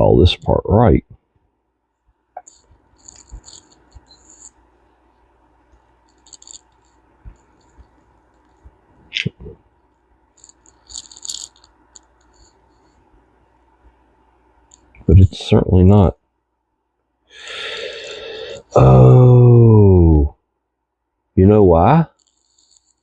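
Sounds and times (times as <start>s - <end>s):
small metal parts clicking: 2.4s - 4.6s, 6.1s - 8.6s, 10.4s - 12.8s, 22.2s - 23.0s.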